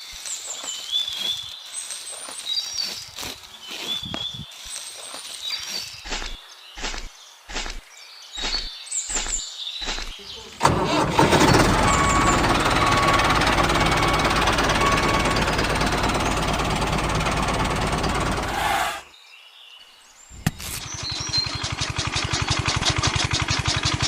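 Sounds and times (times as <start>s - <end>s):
engine cranking: 9.1s - 19.0s, 20.5s - 24.0s
engine running loud: 10.6s - 19.0s, 20.8s - 24.0s.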